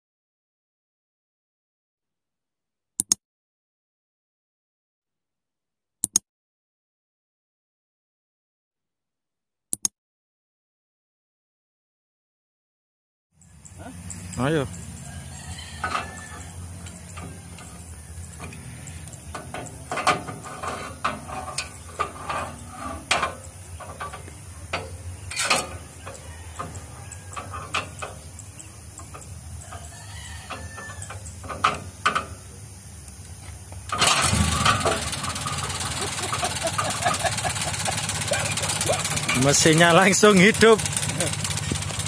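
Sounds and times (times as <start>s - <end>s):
car engine starting and running: 13.4s - 29.8s, 33.8s - 42.0s.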